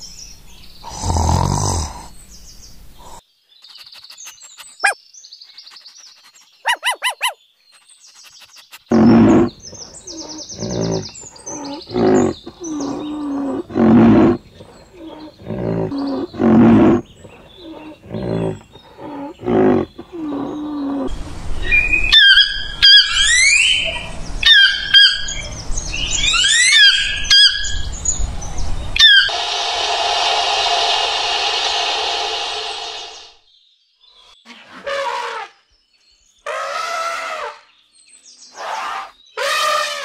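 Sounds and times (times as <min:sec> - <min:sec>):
rhinoceros shrill squeals: 0:06.6 - 0:07.4, 0:26.2 - 0:27.7, 0:29.0 - 0:29.4
rhinoceros deep calls: 0:08.9 - 0:21.1
low rumble: 0:27.8 - 0:33.4
steady hiss: 0:28.4 - 0:33.4.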